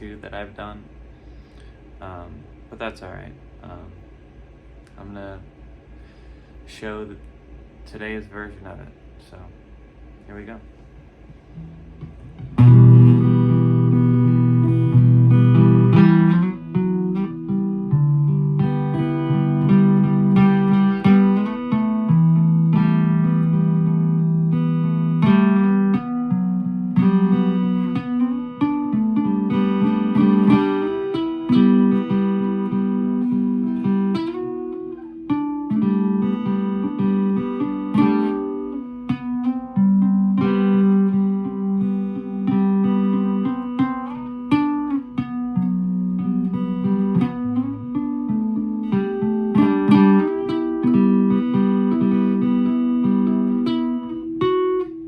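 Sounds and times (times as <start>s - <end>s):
acoustic guitar playing: 11.3s - 55.0s.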